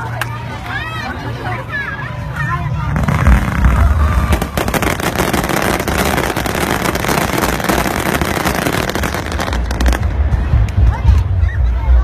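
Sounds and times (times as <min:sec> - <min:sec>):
fireworks booming: 0:02.9 - 0:10.6
fireworks crackling: 0:02.9 - 0:11.0.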